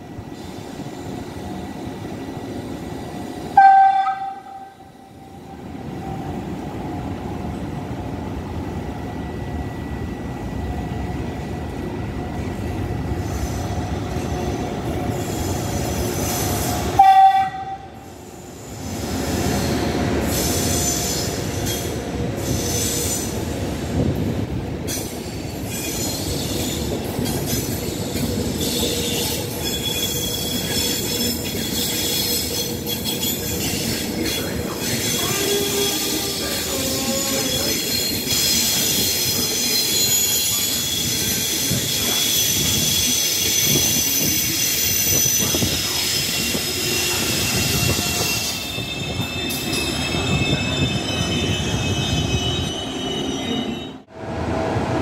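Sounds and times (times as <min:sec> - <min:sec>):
train wheels rumbling and squealing: 0:00.0 - 0:55.0
train horn blasts: 0:03.6 - 0:05.3, 0:17.0 - 0:18.0.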